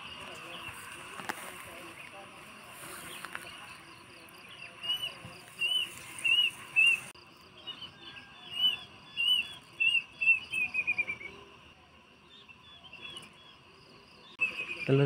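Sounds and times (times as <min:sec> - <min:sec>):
insects chirping: 0:00.0 - 0:15.0
bird whistling: 0:04.8 - 0:07.1, 0:07.8 - 0:11.5, 0:14.4 - 0:15.0.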